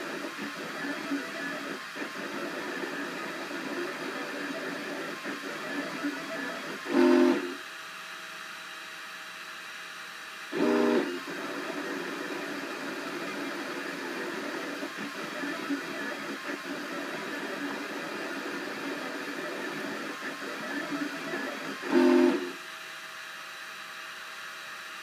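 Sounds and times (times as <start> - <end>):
printer stepper motors whirring: 0.0 - 7.6, 10.6 - 22.6
short tonal motor whines: 21.9 - 22.5.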